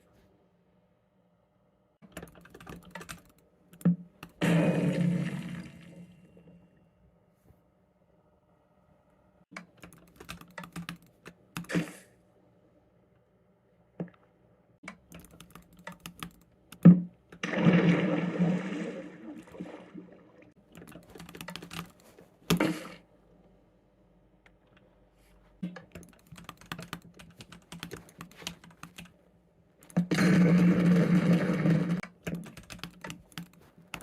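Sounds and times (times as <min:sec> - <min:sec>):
computer keyboard typing: 0:02.0 - 0:04.4, 0:09.6 - 0:11.7, 0:14.9 - 0:16.9, 0:20.7 - 0:22.7, 0:25.9 - 0:29.2, 0:32.0 - 0:34.0.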